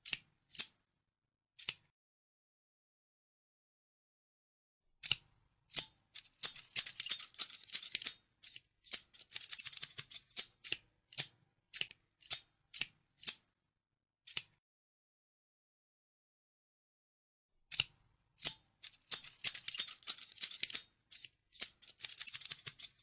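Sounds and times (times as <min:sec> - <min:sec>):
scissors snipping: 0:01.6 - 0:01.9, 0:05.0 - 0:13.4, 0:14.3 - 0:14.6, 0:17.7 - 0:23.0.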